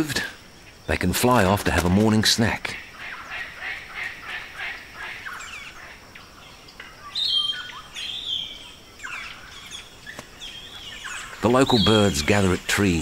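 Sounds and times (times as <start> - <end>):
wild birds chirping: 0.0 - 13.0.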